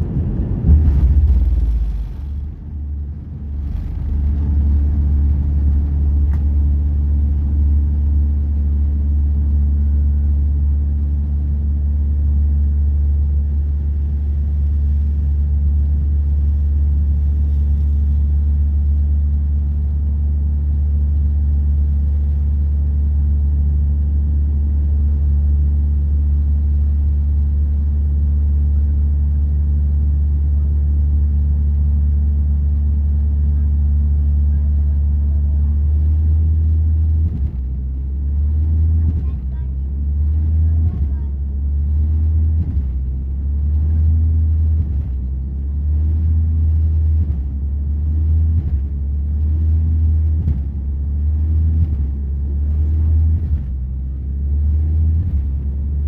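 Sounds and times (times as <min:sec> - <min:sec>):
airliner engines rumbling: 0:00.0 - 0:23.5
steady hum tones: 0:00.0 - 0:56.0.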